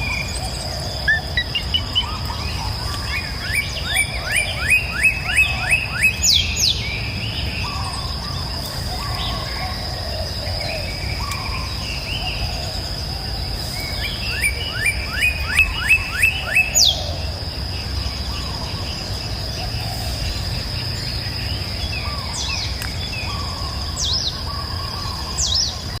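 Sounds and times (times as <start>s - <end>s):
sharp high bird calls: 0.0s - 12.4s, 13.7s - 17.3s
birds whistling calls: 0.0s - 26.0s.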